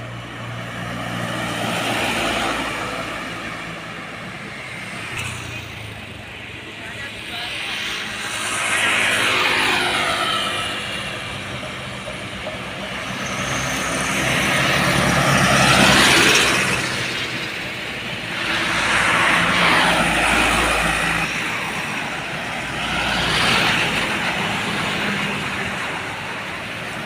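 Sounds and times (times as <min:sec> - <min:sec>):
heavy trucks driving past: 0:07.9 - 0:27.0.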